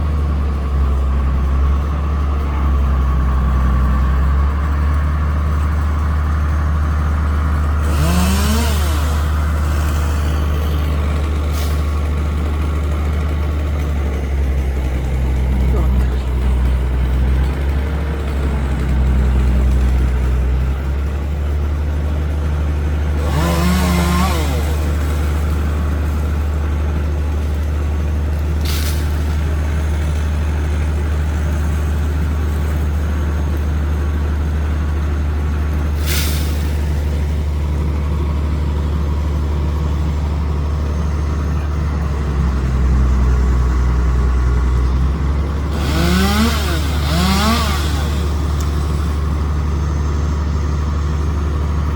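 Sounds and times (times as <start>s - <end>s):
truck engine droning: 0.0s - 51.9s
chainsaw revving: 5.6s - 38.0s, 43.2s - 49.6s.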